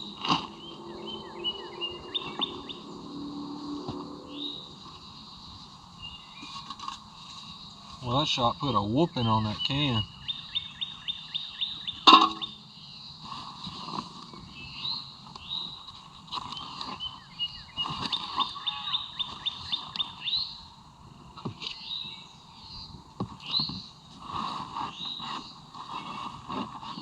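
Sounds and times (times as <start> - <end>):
songbirds singing and chirping: 0.0 - 27.0
sharp crack with ringing tone: 12.0 - 12.6.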